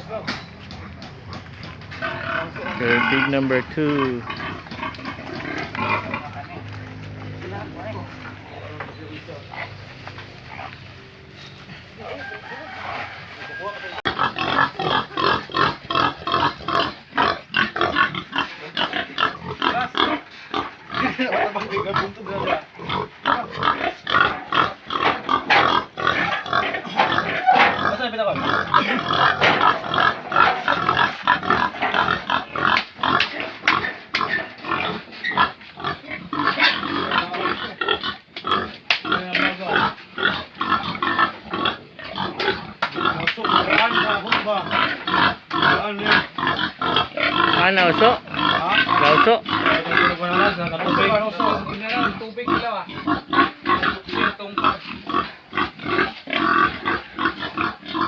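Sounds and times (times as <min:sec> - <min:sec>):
knocks and clatter: 0:00.0 - 0:02.1, 0:24.3 - 0:28.0, 0:29.2 - 0:30.9
pigs grunting and squealing: 0:00.0 - 0:58.0.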